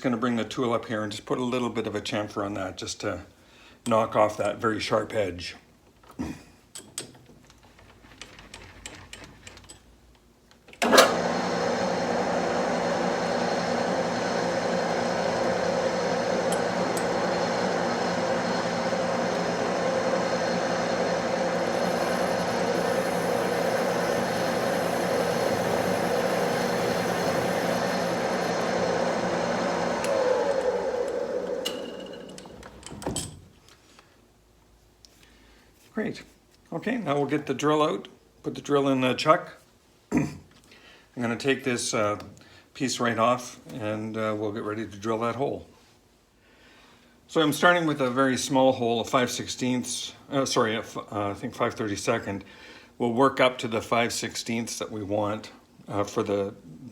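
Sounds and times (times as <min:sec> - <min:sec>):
lathe switch click: 0:10.8 - 0:11.4, 0:16.3 - 0:17.9, 0:21.0 - 0:32.5
metal lathe motor running: 0:10.8 - 0:32.9.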